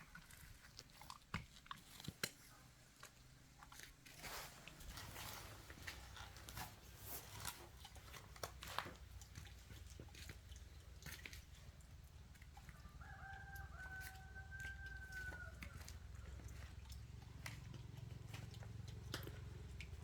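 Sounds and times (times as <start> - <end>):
rooster crowing: 12.7 - 16.0.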